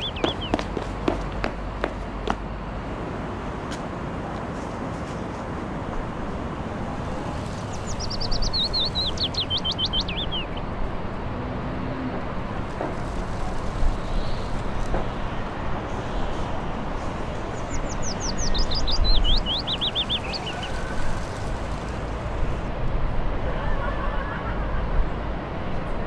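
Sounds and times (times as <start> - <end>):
songbird singing: 0.0 - 2.6, 7.0 - 10.8, 14.0 - 21.8.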